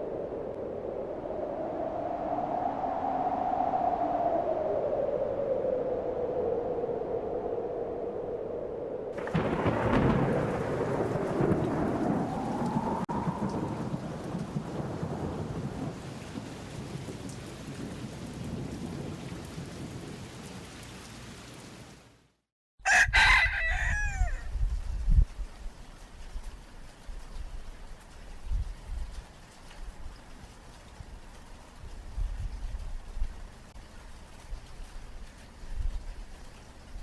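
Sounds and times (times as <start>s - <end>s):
thunder rumble: 0.0s - 20.7s
rain: 0.0s - 37.0s
rooster crowing: 22.8s - 24.6s.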